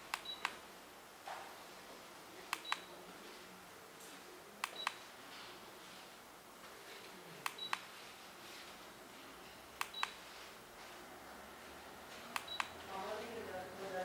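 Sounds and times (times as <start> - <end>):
control clicks: 2.5 - 2.9, 4.6 - 5.0, 9.8 - 10.2, 12.3 - 12.8.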